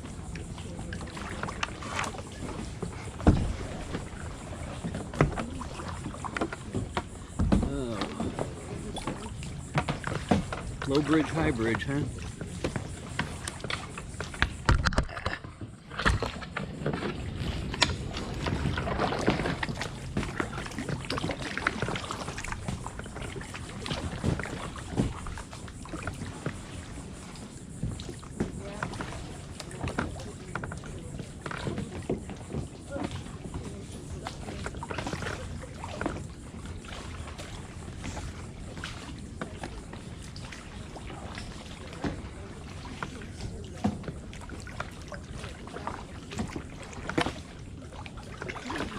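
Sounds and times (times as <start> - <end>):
paddles splashing in water: 0.0 - 48.9
small knocks and drips: 0.3 - 48.9
sharp knocks and clicks: 13.7 - 16.3.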